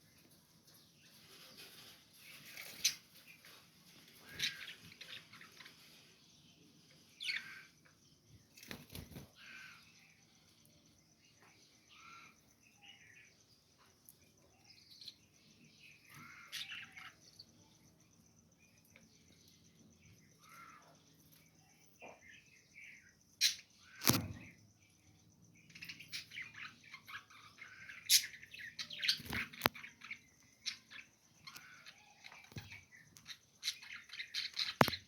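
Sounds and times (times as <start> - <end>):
budgerigars chirping: 4.2 - 5.7, 7.2 - 7.7.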